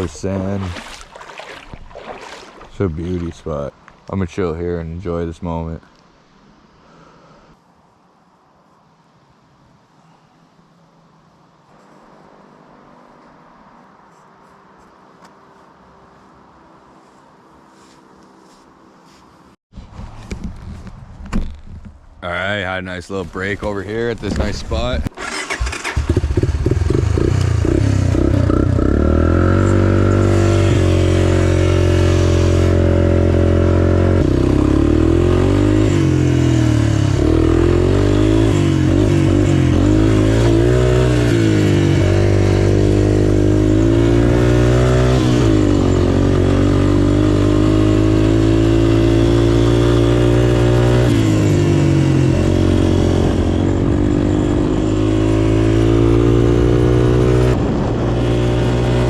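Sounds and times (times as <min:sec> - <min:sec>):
off-road motorcycle engine revving: 0:24.4 - 0:59.0.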